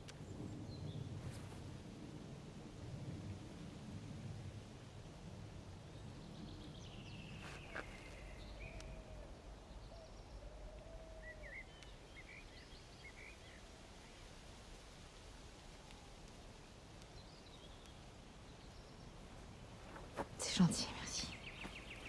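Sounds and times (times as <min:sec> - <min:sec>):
low steady hiss: 0:00.0 - 0:22.0
birds chirping and trilling: 0:06.0 - 0:13.7, 0:17.0 - 0:22.0.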